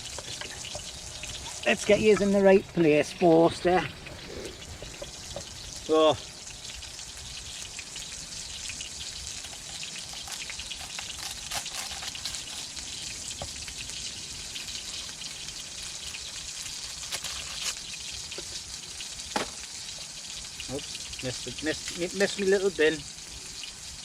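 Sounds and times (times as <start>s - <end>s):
small pops of frying oil: 0.0s - 2.3s, 17.8s - 21.2s
burger patty sizzling in oil: 0.0s - 24.0s.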